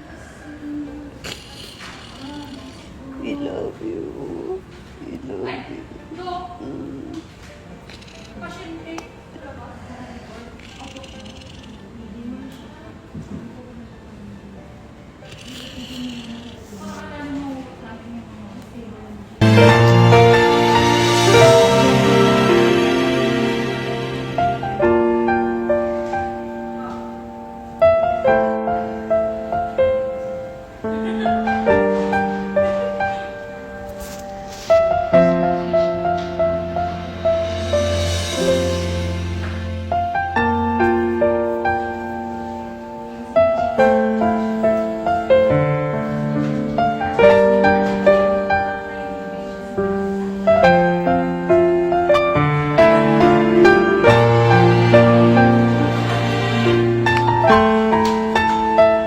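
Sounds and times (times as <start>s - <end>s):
slow piano music: 19.4s - 59.0s.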